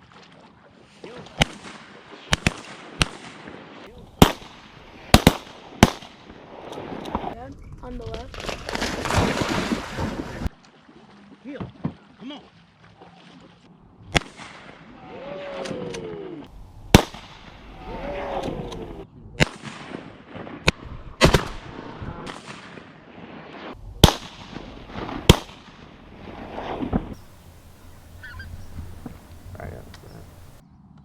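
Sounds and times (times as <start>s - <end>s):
shotgun blasts: 4.2s - 6.3s, 16.9s - 17.6s, 19.4s - 22.9s, 24.0s - 26.0s, 27.2s - 30.6s
short falling cries: 27.4s - 30.6s.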